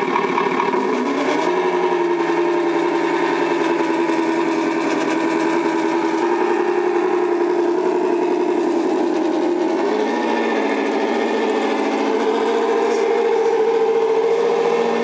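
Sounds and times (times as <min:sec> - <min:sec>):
simulated diesel engine from speaker: 0:00.0 - 0:15.0.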